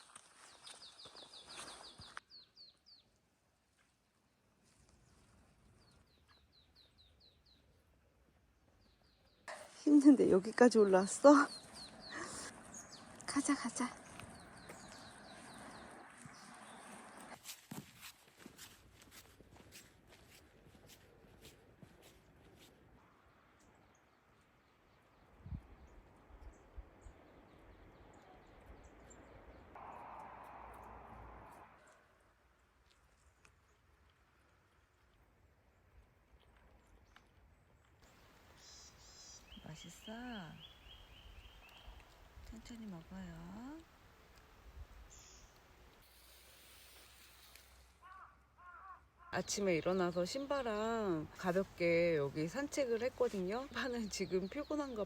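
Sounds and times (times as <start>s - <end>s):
forest ambience: 0.0s - 55.0s
songbird singing: 0.3s - 3.2s, 5.8s - 7.9s, 8.6s - 17.4s, 23.2s - 32.2s, 35.8s - 55.0s
faint bird calls: 38.5s - 42.2s, 45.1s - 49.6s.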